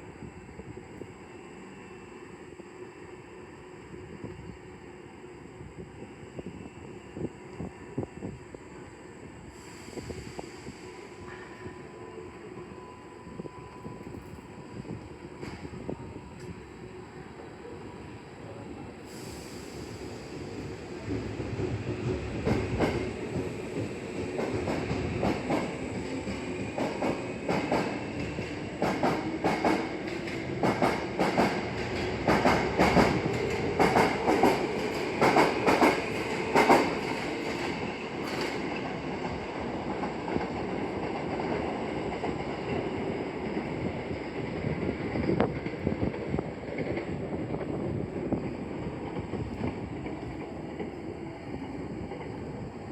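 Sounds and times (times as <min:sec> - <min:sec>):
train running noise: 0:00.0 - 0:52.9
train wheels clacking: 0:19.1 - 0:47.7.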